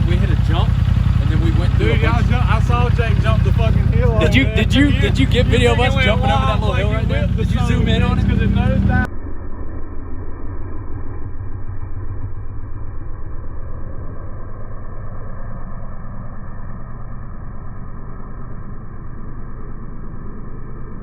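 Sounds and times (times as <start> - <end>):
muffled engine idling: 0.0 - 9.1.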